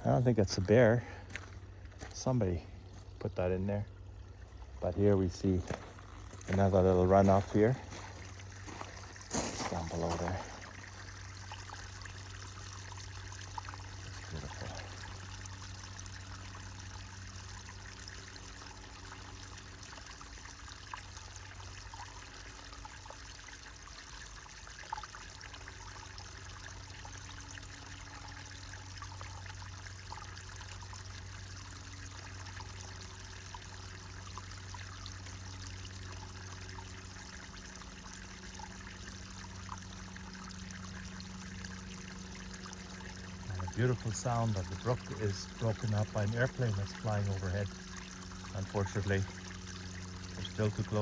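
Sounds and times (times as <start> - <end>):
brook trickling and splashing: 0.0 - 51.0
airplane drone overhead: 3.4 - 23.7, 25.1 - 51.0.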